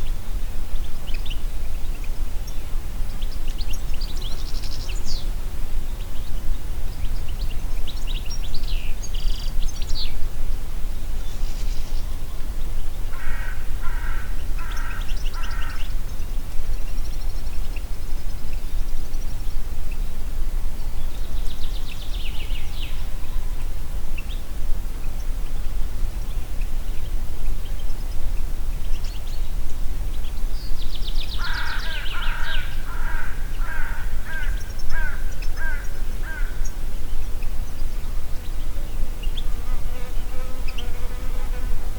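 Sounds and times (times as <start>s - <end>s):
wind in forest: 0.0s - 41.9s
birds calling and singing: 0.8s - 20.2s, 20.8s - 41.0s
bird harsh repeated calls: 13.1s - 15.8s, 31.4s - 36.7s.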